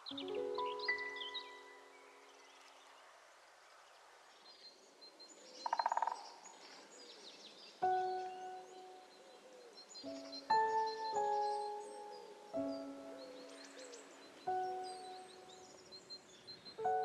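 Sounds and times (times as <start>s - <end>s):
soft background music: 0.0s - 2.7s, 7.8s - 17.0s
birds chirping: 0.0s - 3.1s, 4.4s - 17.0s.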